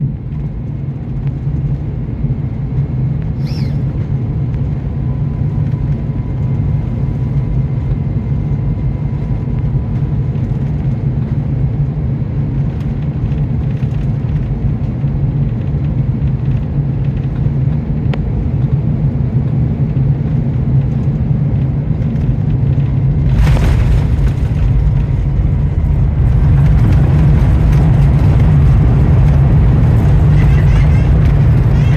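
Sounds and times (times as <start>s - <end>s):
airliner engine rumble: 0.0s - 31.9s
aircraft touchdown jolt: 22.8s - 31.9s.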